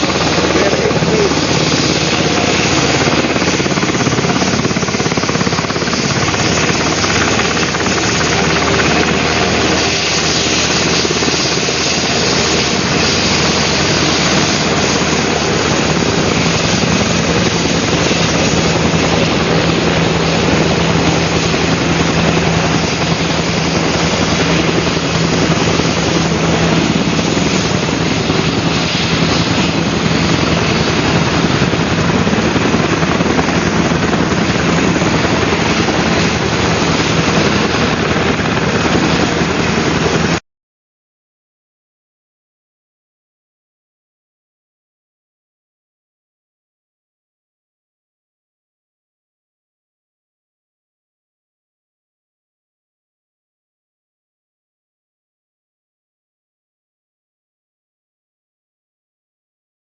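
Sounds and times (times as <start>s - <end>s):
helicopter engine and rotor: 0.0s - 40.4s.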